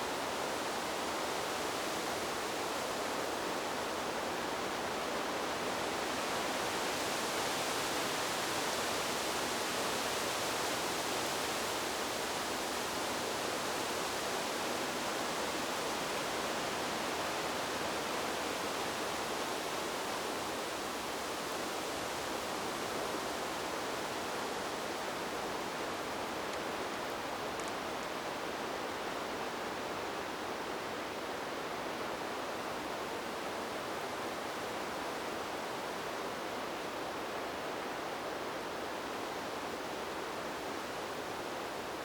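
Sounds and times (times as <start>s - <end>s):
wind blowing through trees: 0.0s - 42.0s.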